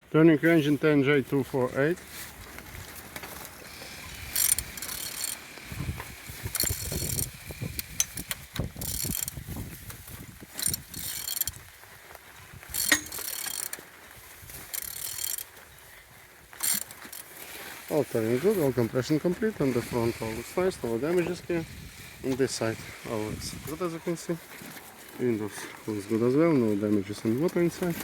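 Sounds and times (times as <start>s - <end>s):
engine turned over by hand: 2.6s - 11.5s, 12.6s - 13.8s
ratchet clicking: 3.9s - 5.5s, 6.1s - 9.4s, 10.5s - 11.6s, 12.7s - 13.8s, 14.7s - 15.5s, 16.6s - 17.2s.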